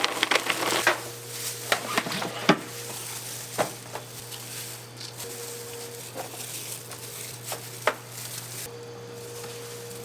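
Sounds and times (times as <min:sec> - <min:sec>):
hard objects knocking and scraping: 0:00.0 - 0:01.1
steady low hum: 0:00.0 - 0:10.0.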